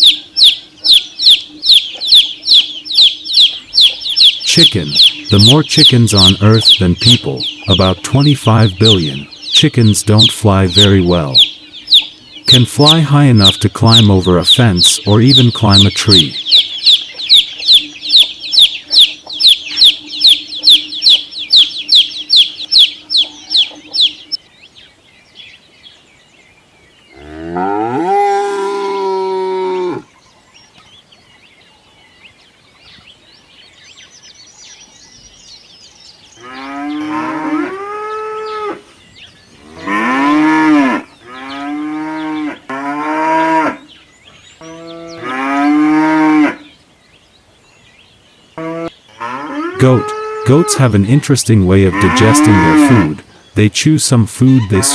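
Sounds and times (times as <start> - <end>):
high even chirps: 0.0 - 24.4
farm animal calls: 0.0 - 54.9.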